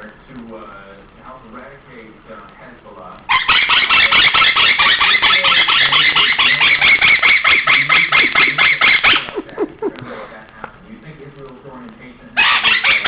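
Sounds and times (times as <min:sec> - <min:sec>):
parrot screeching: 0:03.3 - 0:09.4, 0:12.4 - 0:13.0.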